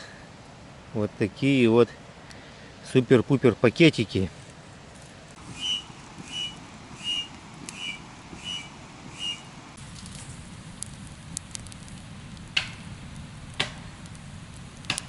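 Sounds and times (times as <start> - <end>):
campfire crackling: 0.0 - 15.0
bird whistling: 5.5 - 9.6.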